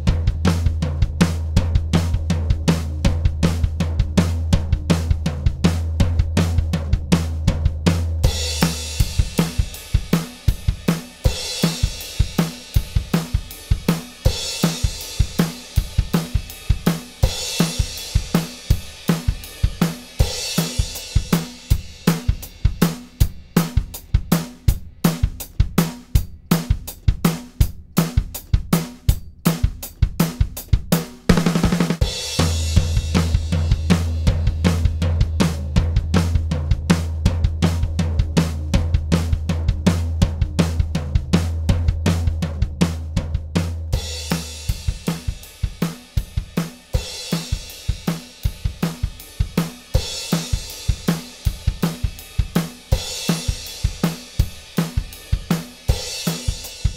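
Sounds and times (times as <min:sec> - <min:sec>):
drum kit groove: 0:00.0 - 0:56.9.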